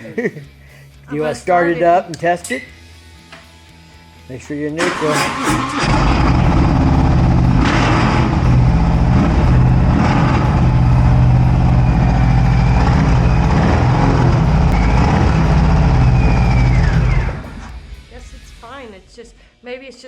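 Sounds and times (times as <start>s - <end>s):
motorcycle engine idling: 5.9s - 18.6s.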